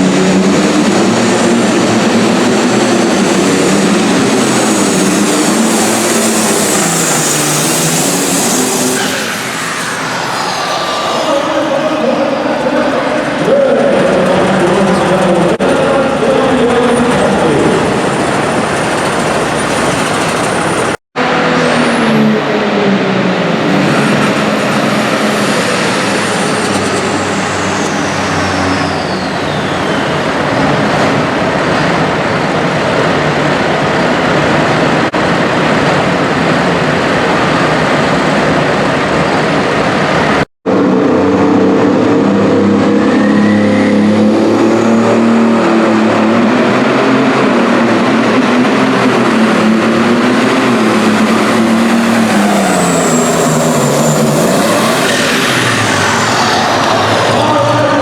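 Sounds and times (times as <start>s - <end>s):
tractor engine at full power: 0.0s - 58.0s
high whistle falling in pitch: 27.8s - 30.6s.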